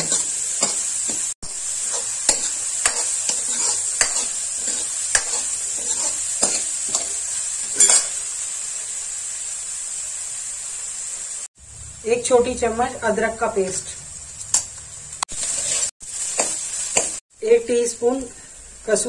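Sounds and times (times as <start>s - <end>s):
steel ladle scraping a pan: 0.0s - 8.2s, 15.4s - 17.1s
onion and garlic sizzling in oil: 0.0s - 19.0s.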